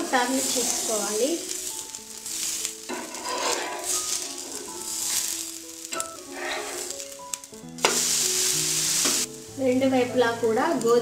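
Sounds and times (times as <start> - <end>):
background music: 0.0 - 11.0
dosa sizzling in oil: 0.0 - 11.0
spatula scraping pan: 0.2 - 7.2.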